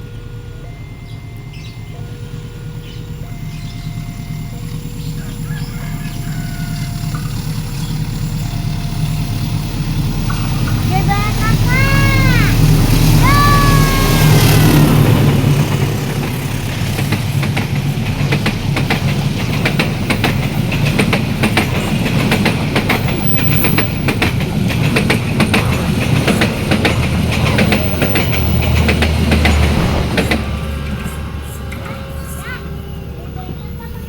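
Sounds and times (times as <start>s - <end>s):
locomotive engine rumble: 0.0s - 34.0s
train wheels clattering: 0.0s - 34.0s
locomotive horn: 1.9s - 7.6s, 11.5s - 15.5s, 29.6s - 34.0s.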